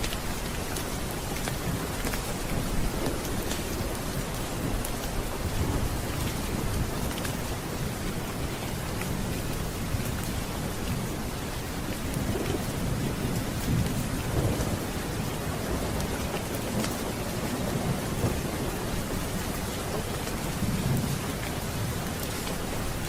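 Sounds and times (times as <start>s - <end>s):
heavy rain: 0.0s - 23.0s
rolling thunder: 11.9s - 21.9s
faint crackles: 15.8s - 22.6s.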